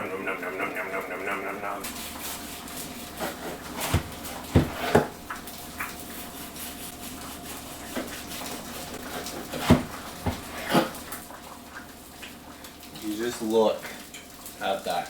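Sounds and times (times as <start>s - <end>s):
faint steady hum: 0.0s - 13.0s
kitchen utensils and dishes clattering: 1.8s - 11.6s.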